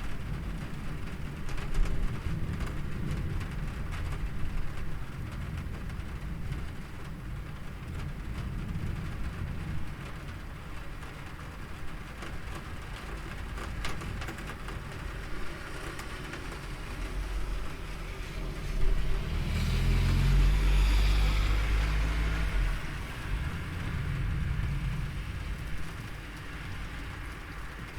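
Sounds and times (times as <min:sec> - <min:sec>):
steady rain falling: 0:00.0 - 0:27.9
low rumble: 0:16.4 - 0:27.7.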